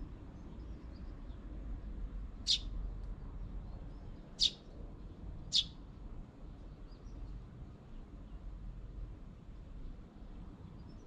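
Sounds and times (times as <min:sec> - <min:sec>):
small bird chirping: 0:02.4 - 0:02.7, 0:03.8 - 0:04.7, 0:05.5 - 0:05.8.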